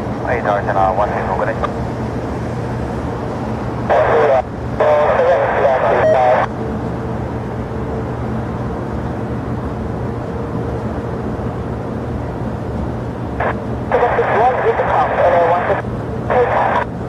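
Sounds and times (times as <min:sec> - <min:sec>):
jet engines rumbling: 0:00.0 - 0:17.0
radio transmissions: 0:00.1 - 0:01.8, 0:03.6 - 0:06.5, 0:13.4 - 0:17.0.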